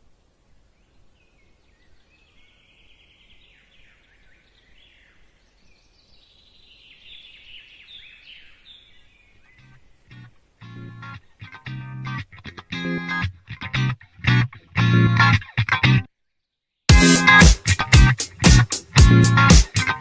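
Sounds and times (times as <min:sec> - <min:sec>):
faint birdsong chirps and trills: 0:00.0 - 0:11.6.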